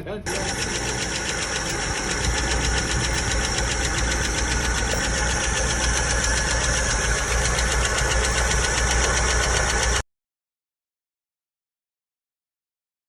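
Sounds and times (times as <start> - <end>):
engine running: 0.2 - 10.0.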